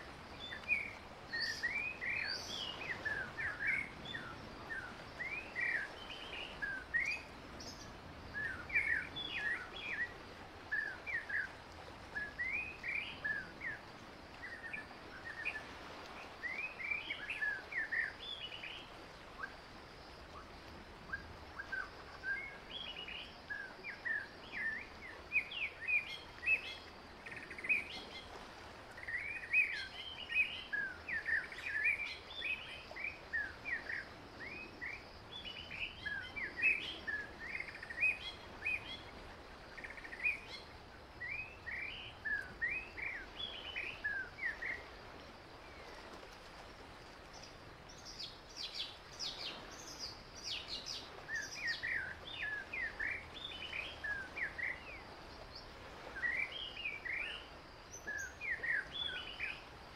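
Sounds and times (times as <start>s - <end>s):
wild birds chirping: 0.0s - 15.6s, 47.2s - 59.8s
faint outdoor hiss: 0.0s - 59.9s.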